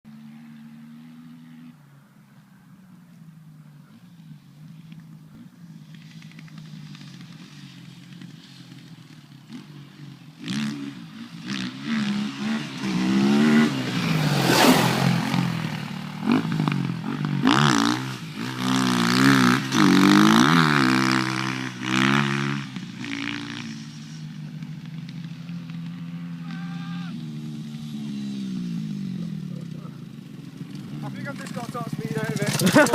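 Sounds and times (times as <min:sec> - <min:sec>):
motorcycle engine revving and idling: 0:00.1 - 0:32.9.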